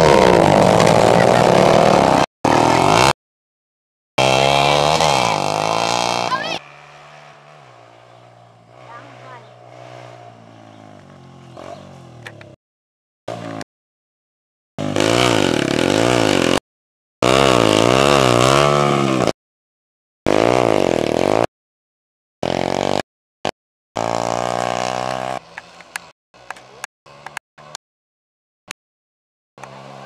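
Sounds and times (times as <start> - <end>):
motocross bike engines revving: 0.0 - 3.2, 4.2 - 12.6, 13.3 - 13.6, 14.8 - 16.6, 17.2 - 19.4, 20.3 - 21.5, 22.4 - 23.0, 24.0 - 27.8, 29.6 - 30.0.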